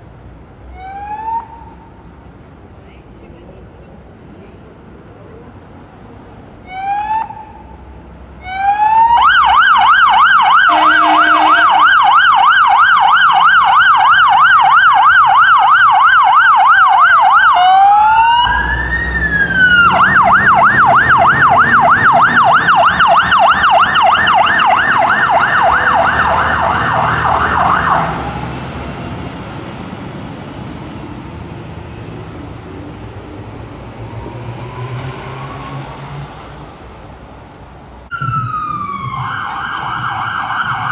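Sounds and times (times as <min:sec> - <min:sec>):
truck engine and road noise: 0:00.0 - 0:40.9
fire engine siren: 0:00.7 - 0:02.0, 0:06.6 - 0:07.8, 0:08.4 - 0:31.6, 0:33.0 - 0:37.3, 0:38.1 - 0:40.9.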